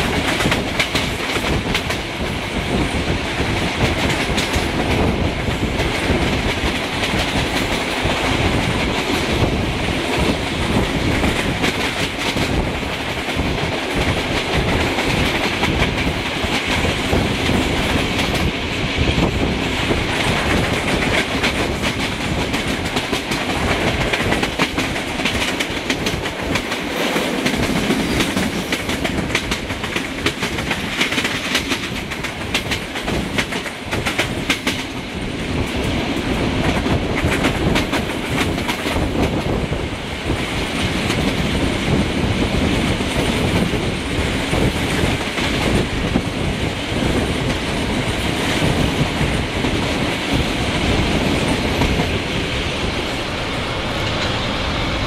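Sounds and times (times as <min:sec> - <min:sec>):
train wheels clickety-clack: 0:00.0 - 0:55.0
rushing air: 0:43.9 - 0:55.0.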